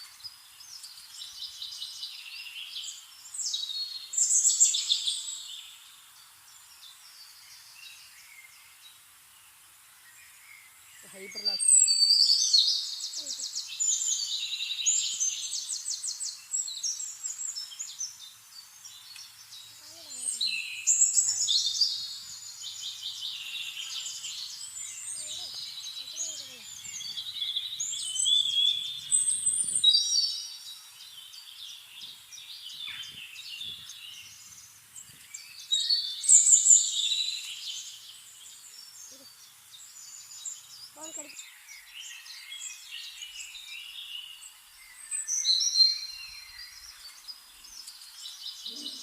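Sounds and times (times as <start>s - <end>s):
small birds chirping and singing: 0.0s - 49.0s.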